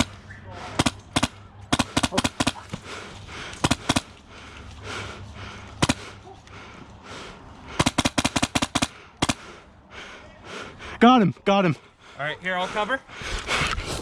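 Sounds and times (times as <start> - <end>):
airsoft guns firing: 0.0 - 2.9, 3.6 - 4.1, 5.8 - 6.2, 7.8 - 9.5.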